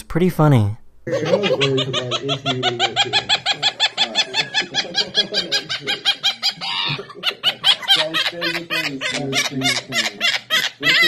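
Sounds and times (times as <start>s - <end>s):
man laughing: 1.1s - 11.0s
bird laugh-like calls: 1.2s - 11.0s.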